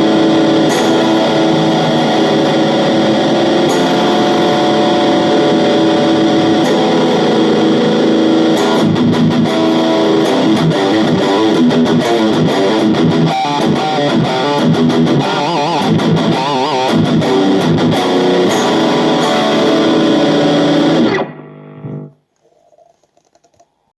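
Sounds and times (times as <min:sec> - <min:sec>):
electric guitar sustained notes: 0:00.0 - 0:22.1.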